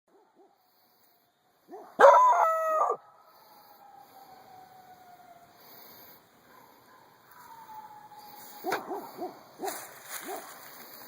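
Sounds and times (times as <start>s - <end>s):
distant dog howling: 1.7s - 5.8s, 6.5s - 10.5s
dog yelping: 8.6s - 10.5s.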